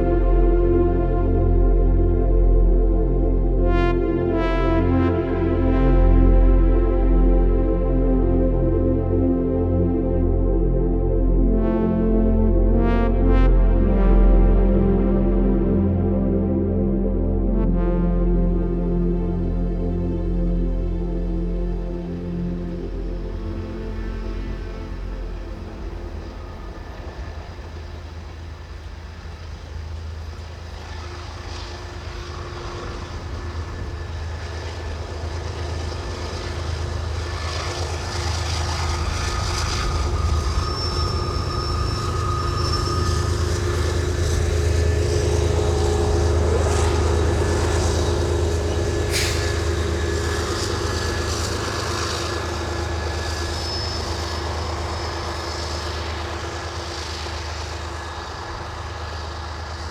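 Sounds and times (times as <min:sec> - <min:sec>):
faint steady tones: 0:17.7 - 0:59.9
train rumbling past: 0:18.6 - 0:59.9.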